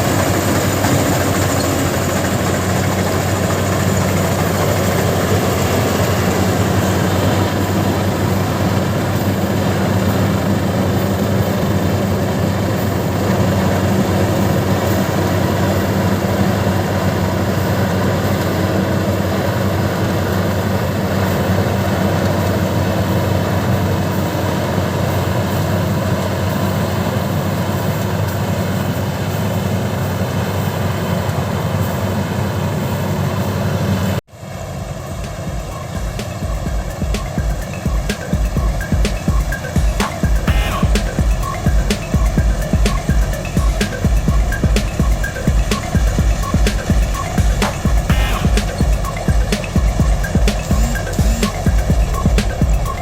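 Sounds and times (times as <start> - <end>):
combine harvester engine running: 0.0 - 53.0.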